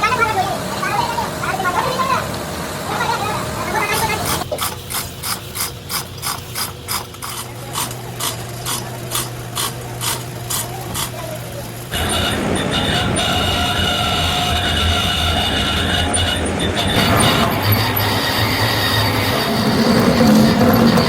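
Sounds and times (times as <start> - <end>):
heavy machinery whining and humming: 0.0 - 5.9, 6.6 - 21.0
ratchet-like mechanical clicking: 3.9 - 14.3.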